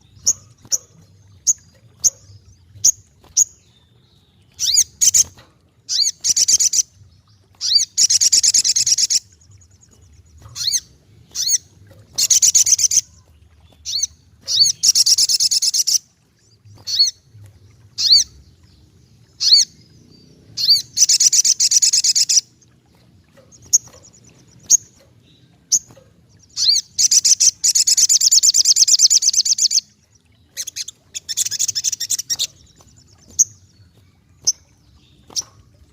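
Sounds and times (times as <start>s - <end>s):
bird trilling: 19.4s - 19.7s, 20.6s - 22.5s, 25.7s - 29.9s.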